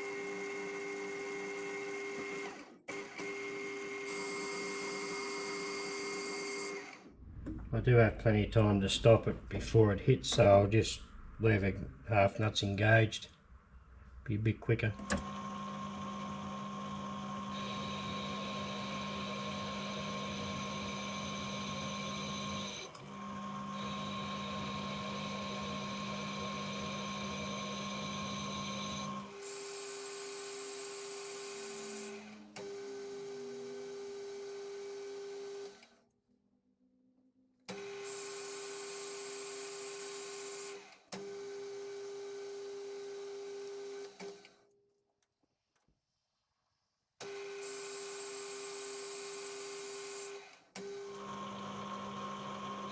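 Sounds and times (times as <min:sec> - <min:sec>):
metal lathe motor and gear whine: 0:15.0 - 0:29.3.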